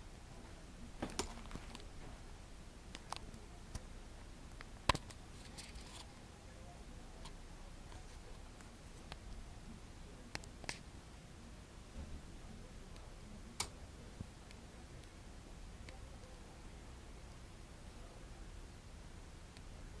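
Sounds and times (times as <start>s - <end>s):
low room hiss: 0.0s - 20.0s
faint clicks and taps: 2.9s - 3.9s.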